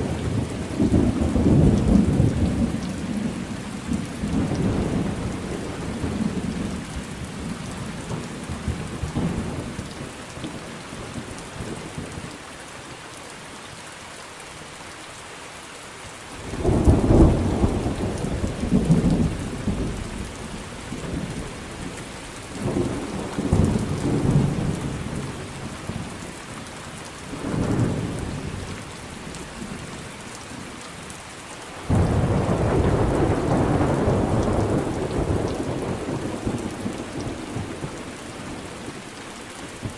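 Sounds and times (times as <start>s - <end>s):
steady rain: 0.0s - 39.9s
loud crack of thunder: 16.6s - 20.1s, 31.9s - 38.0s
rolling thunder: 16.6s - 22.0s, 22.6s - 26.2s, 31.9s - 38.7s.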